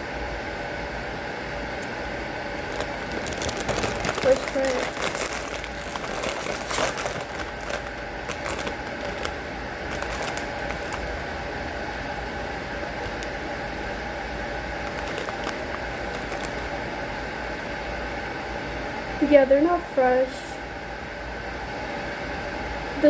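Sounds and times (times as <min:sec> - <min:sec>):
steady mechanical hum: 0:00.0 - 0:23.0
chips being chewed: 0:02.7 - 0:11.2, 0:14.8 - 0:16.8.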